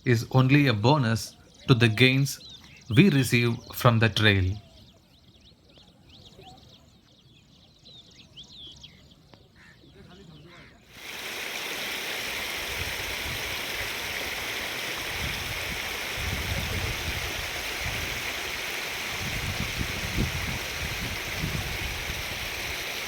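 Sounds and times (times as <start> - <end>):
stream water rushing: 10.9 - 23.0.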